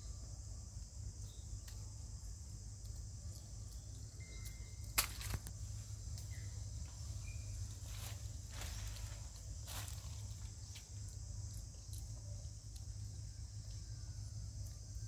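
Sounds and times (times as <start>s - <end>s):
insects droning: 0.0s - 15.0s
small clicks and rustles: 2.8s - 7.0s
sharp snap: 4.9s - 5.5s.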